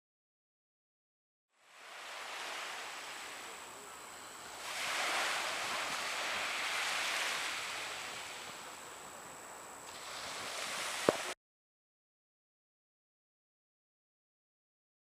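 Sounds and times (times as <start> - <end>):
sea water lapping: 1.6 - 11.4
wind on microphone: 1.8 - 11.4.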